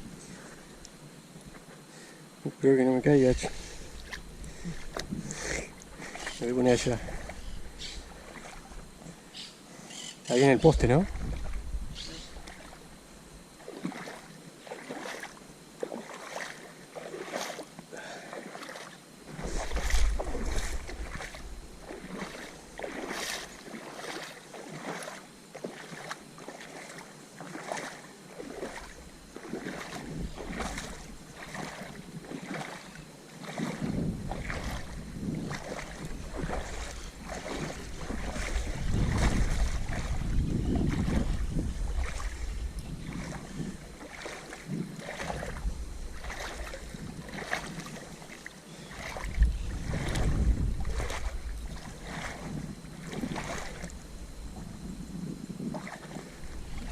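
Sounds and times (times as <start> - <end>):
water splashing and sloshing: 3.0 - 9.6, 10.3 - 56.9
wind on microphone: 10.6 - 12.8, 19.3 - 23.5, 29.9 - 31.8, 33.6 - 48.3, 48.9 - 56.9.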